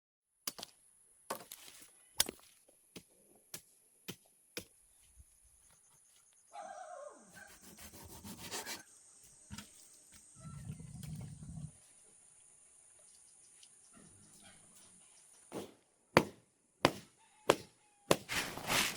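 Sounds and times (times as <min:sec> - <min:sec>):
blade chopping sugarcane: 0:15.5 - 0:18.9
cane rustling and creaking: 0:18.3 - 0:18.9.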